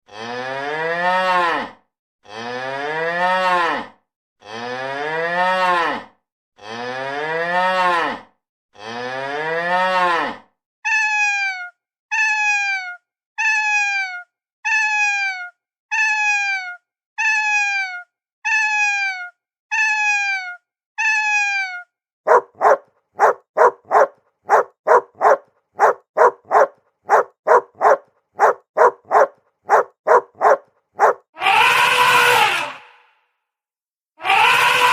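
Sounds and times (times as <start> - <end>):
cow mooing: 0.1 - 1.7
small dog yapping: 22.3 - 31.2.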